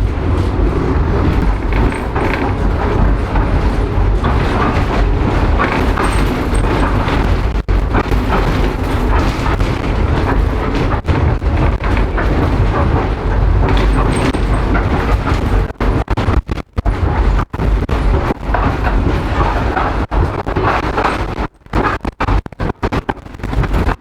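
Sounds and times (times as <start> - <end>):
tram rumbling past: 0.0 - 16.0
wheels clattering on rails: 0.0 - 24.0.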